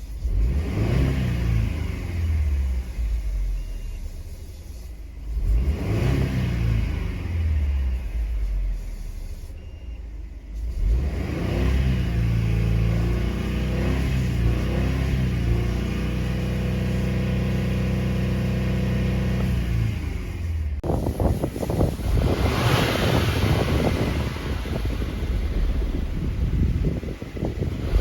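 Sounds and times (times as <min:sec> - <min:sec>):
car engine running: 0:12.5 - 0:28.0
wind buffeting microphone: 0:20.8 - 0:28.0.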